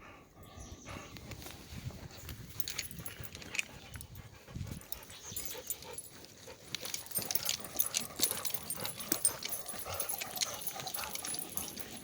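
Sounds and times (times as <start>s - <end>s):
dog panting: 2.8s - 12.0s.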